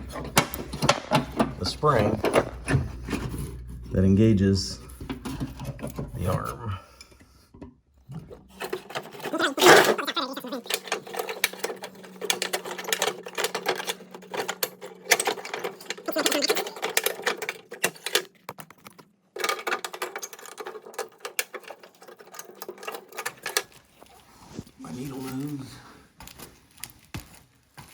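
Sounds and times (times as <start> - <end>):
metal clicking and clanking: 0.0 - 3.4, 8.1 - 23.8.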